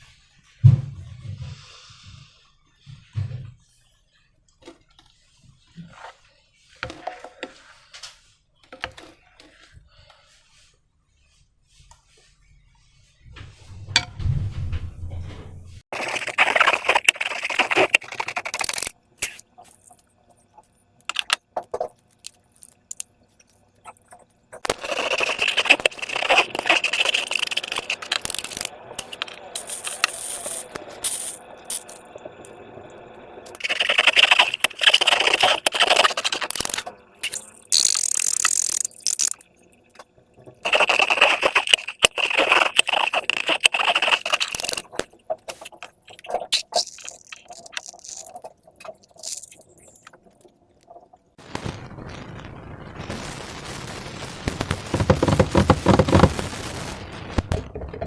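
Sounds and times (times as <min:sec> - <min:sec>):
slime squelching and crackling: 0:15.9 - 0:32.0, 0:33.5 - 0:51.3, 0:54.5 - 0:56.6.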